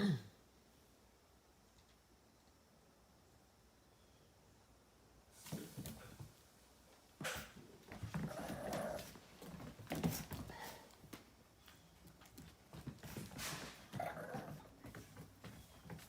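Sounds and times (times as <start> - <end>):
paws and claws scuffling: 7.9 - 16.0
small animal sounds: 8.1 - 9.3, 13.9 - 16.0.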